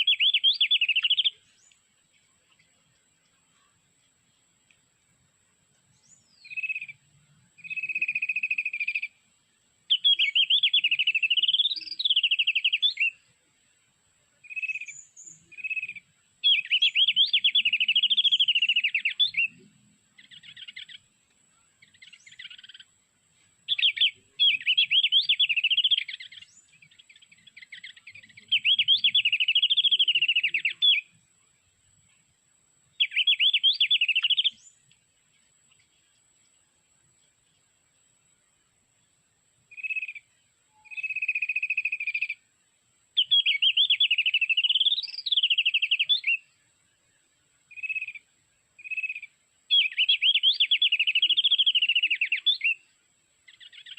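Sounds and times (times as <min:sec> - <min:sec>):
bird trilling warbled song: 0:00.0 - 0:01.8, 0:06.0 - 0:07.0, 0:07.6 - 0:09.2, 0:09.9 - 0:13.2, 0:14.4 - 0:19.6, 0:20.2 - 0:21.0, 0:21.8 - 0:22.9, 0:23.7 - 0:31.1, 0:33.0 - 0:34.9, 0:39.7 - 0:42.4, 0:43.2 - 0:46.5, 0:47.7 - 0:52.9, 0:53.5 - 0:53.9.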